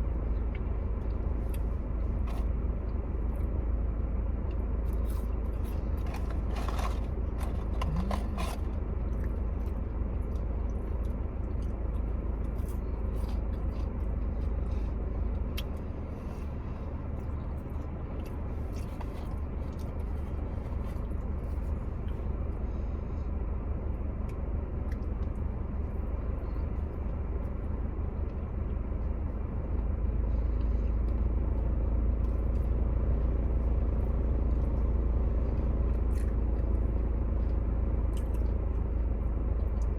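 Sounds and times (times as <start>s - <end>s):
steady low rumble: 0.0s - 39.9s
clicks and scrapes of eating: 1.0s - 2.5s, 4.9s - 16.5s, 17.6s - 22.2s, 35.5s - 39.9s.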